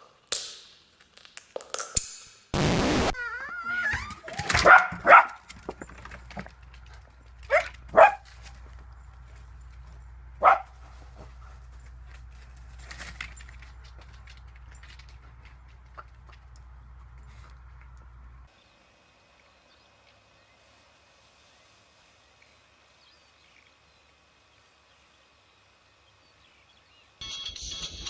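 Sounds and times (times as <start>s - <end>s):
burst of noise: 2.6s - 4.1s
dog whining: 3.1s - 5.2s
dog barking: 4.4s - 5.5s, 7.5s - 8.3s, 10.4s - 10.9s.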